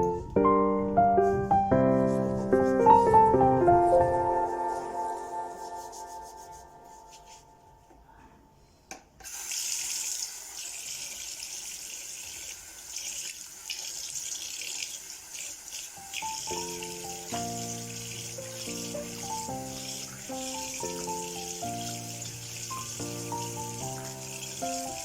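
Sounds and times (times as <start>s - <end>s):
piano music: 0.0s - 7.9s, 16.0s - 25.0s
tap water running into sink: 9.2s - 25.0s.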